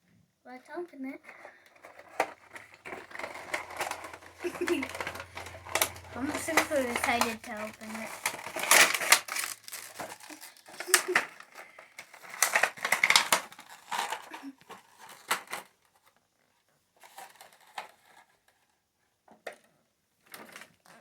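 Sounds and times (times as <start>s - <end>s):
packaging torn and crinkled: 1.8s - 15.7s.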